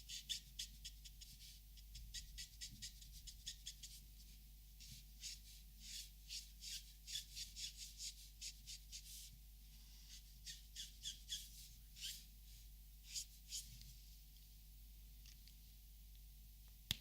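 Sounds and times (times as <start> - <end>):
marker rubbing on paper: 0.0 - 9.4, 10.0 - 13.8.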